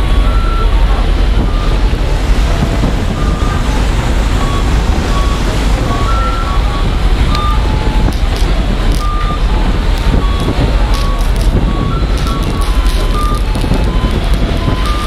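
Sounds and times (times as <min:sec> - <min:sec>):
short electronic beeps: 0:00.0 - 0:15.0
steady low rumble: 0:00.0 - 0:15.0.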